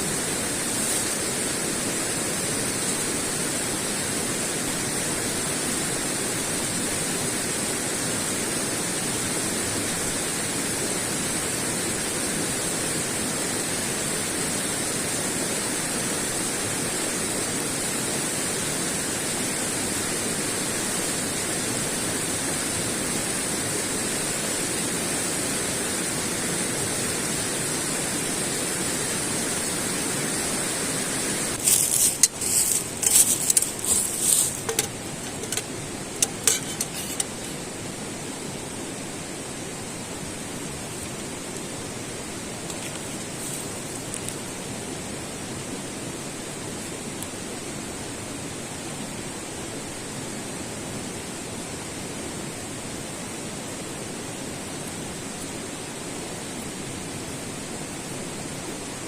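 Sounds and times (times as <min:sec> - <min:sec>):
rushing hissing noise: 0:00.0 - 0:59.0
sharp clinks and knocks: 0:31.6 - 0:37.6.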